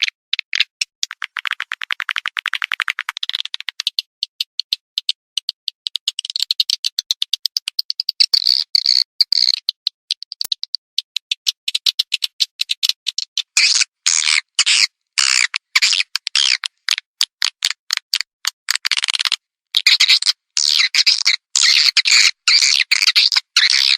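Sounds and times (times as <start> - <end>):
swiftlet clicking chirps: 0.0 - 13.9.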